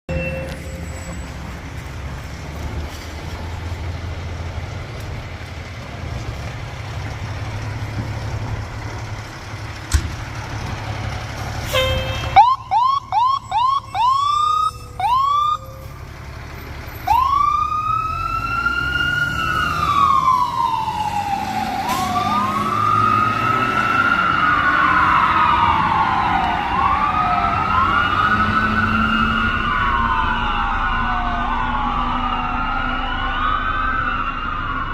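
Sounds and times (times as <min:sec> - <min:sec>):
low engine rumble: 0:00.5 - 0:18.0
siren whoops: 0:11.8 - 0:15.9, 0:17.1 - 0:34.9
second siren wail: 0:11.8 - 0:16.0, 0:17.1 - 0:34.9
siren wailing: 0:11.8 - 0:16.0, 0:17.1 - 0:34.9.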